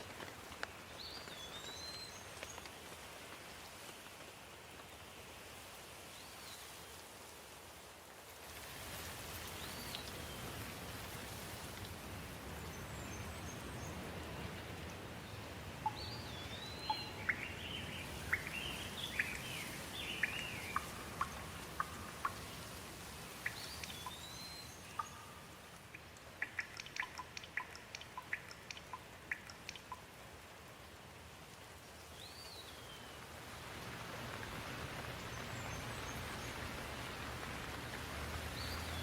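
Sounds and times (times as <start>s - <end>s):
water dripping: 0.0s - 4.2s, 9.1s - 39.0s
steady rain: 0.0s - 39.0s
birds chirping: 15.3s - 22.6s, 23.4s - 30.0s.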